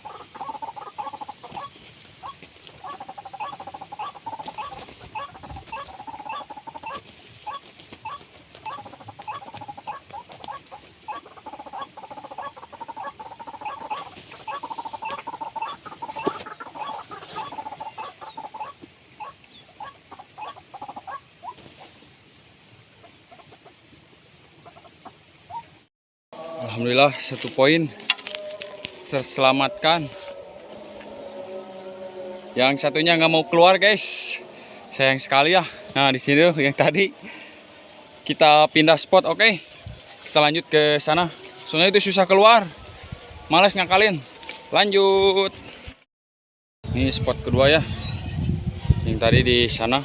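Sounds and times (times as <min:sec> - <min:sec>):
clucking bird calls: 0:00.0 - 0:22.0, 0:22.9 - 0:23.9, 0:24.5 - 0:25.8.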